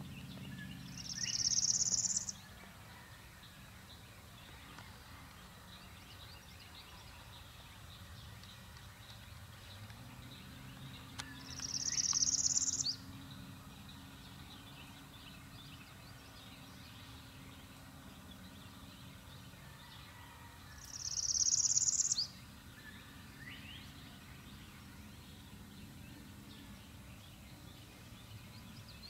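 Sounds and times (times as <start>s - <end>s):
faint bird chirps: 0.5s - 3.2s, 11.2s - 13.0s, 20.1s - 22.3s
small bird trilling: 1.1s - 2.3s, 11.6s - 12.9s.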